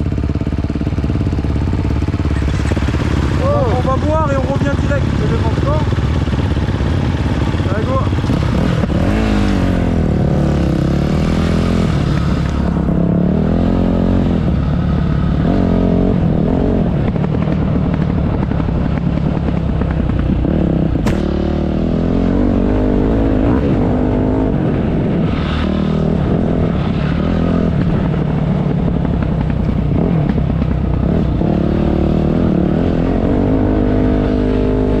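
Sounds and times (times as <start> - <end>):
dirt bike engine revving: 0.1 - 17.5, 18.3 - 28.3, 29.9 - 35.0
sharp click: 21.0 - 21.4.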